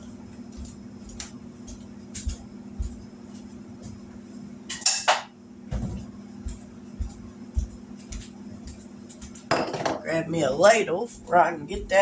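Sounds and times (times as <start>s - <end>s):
dishes clinking: 4.7s - 5.3s, 9.5s - 10.1s
dish clattering: 9.5s - 10.1s.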